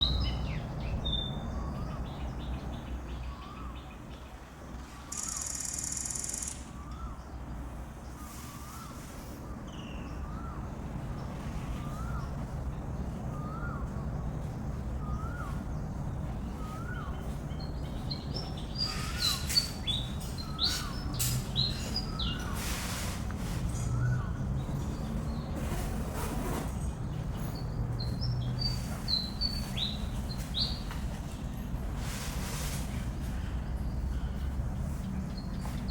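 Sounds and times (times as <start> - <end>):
bird calling: 4.8 - 7.3, 18.4 - 23.0
high bird chirps: 5.0 - 7.1
sharp clicks and chirps: 5.1 - 6.8.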